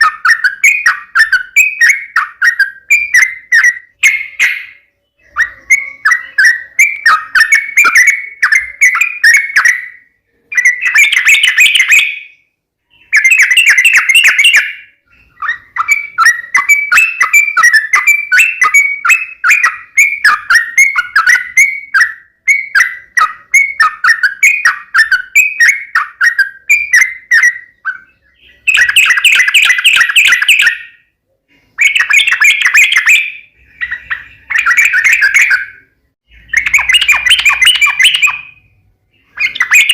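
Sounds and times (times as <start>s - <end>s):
bird chattering calls: 31.8s - 39.9s.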